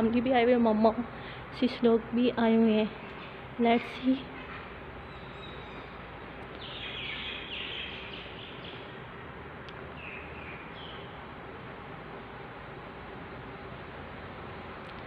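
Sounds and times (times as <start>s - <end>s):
steady background noise: 0.0s - 15.0s
small birds chirping: 2.7s - 11.4s.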